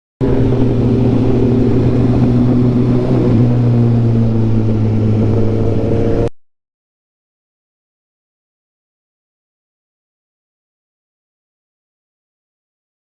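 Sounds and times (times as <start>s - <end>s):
motorcycle engine droning: 0.2s - 6.4s.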